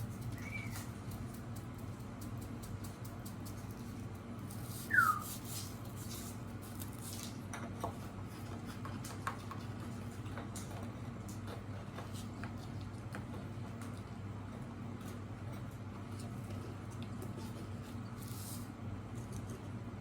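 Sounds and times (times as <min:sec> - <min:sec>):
steady low hum: 0:00.0 - 0:06.8
bird chirp: 0:00.3 - 0:00.9, 0:04.9 - 0:05.3.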